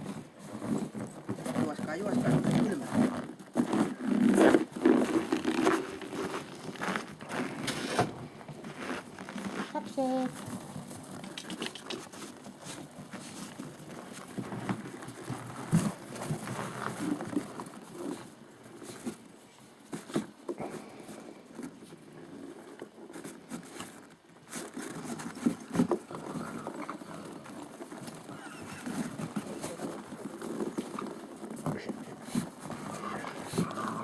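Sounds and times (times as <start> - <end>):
puppies pattering: 8.7 - 34.0.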